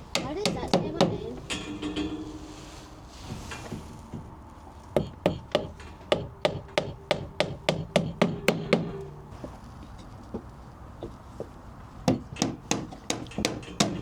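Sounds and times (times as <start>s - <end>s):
hammer driving nail into wood: 5.0s - 9.0s.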